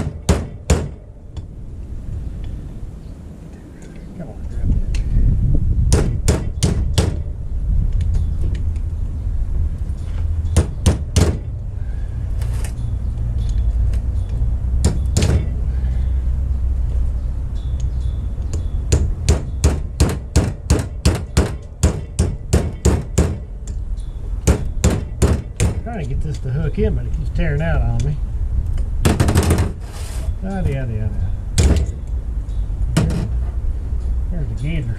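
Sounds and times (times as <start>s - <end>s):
hammer striking a tool: 14.8s - 15.5s, 18.5s - 23.5s, 24.4s - 25.8s.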